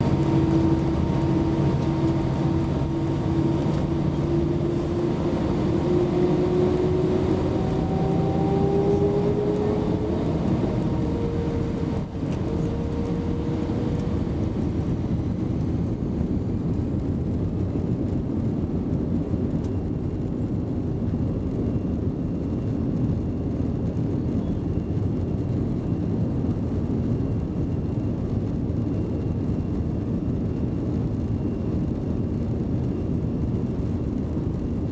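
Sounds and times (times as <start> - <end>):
jet engines spooling up: 0.0 - 16.8.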